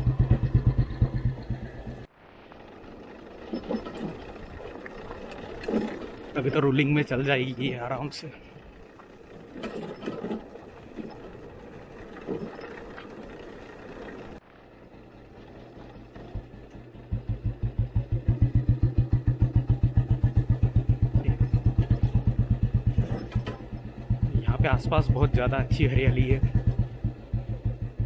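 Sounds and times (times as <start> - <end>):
motorcycle engine thumping: 0.0 - 2.1, 15.9 - 28.0.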